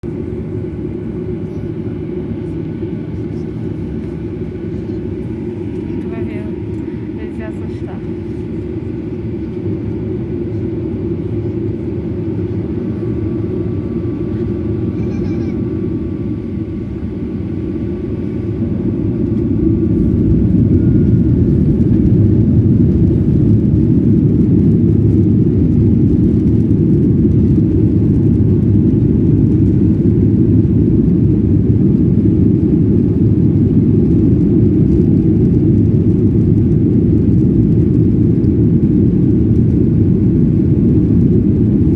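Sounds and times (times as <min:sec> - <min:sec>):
jet engines deep rumble: 0:00.0 - 0:41.9.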